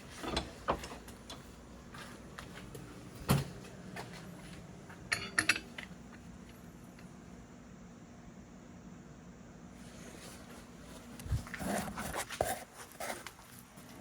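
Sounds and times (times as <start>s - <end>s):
metal clink ringing: 5.1s - 5.7s.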